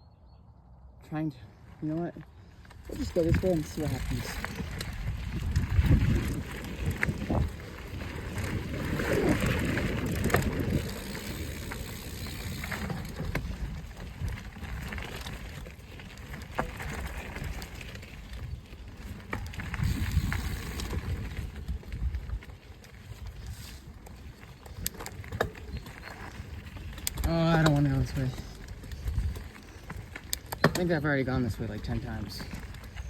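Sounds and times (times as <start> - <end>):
bike clicks and rattles: 1.8 - 33.0
bike tyres rumbling on dirt: 1.8 - 33.0
wind on microphone: 2.9 - 15.0, 18.3 - 27.2, 28.0 - 30.2.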